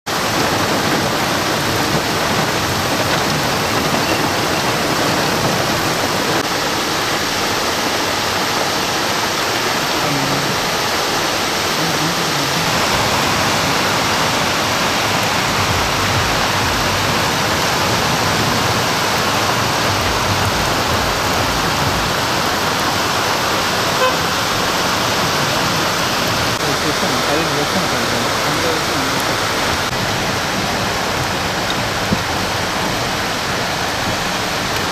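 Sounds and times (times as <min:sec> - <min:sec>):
floodwater rushing: 0:00.1 - 0:34.9
heavy rain pouring: 0:00.1 - 0:34.9
low rumble: 0:11.8 - 0:23.8.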